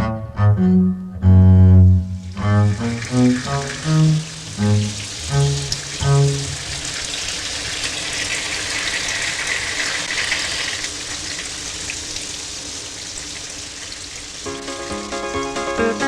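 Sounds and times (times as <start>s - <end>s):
light musical notes: 0.0s - 6.6s
rain falling: 2.1s - 16.0s.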